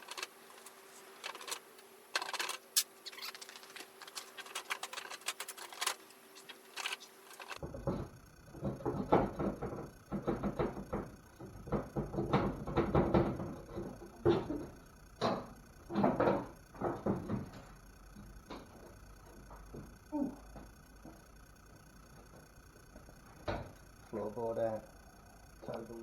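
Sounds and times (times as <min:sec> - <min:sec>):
tools and metal parts clanking: 0:00.0 - 0:07.6.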